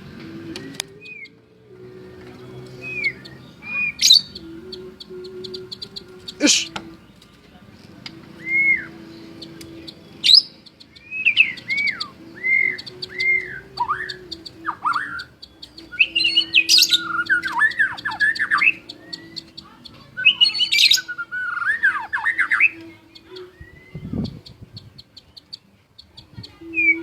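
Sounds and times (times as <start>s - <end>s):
bird singing whistles: 0.5s - 1.4s, 2.0s - 7.3s, 8.3s - 27.0s
bird harsh chattering: 2.6s - 7.0s, 8.4s - 27.0s.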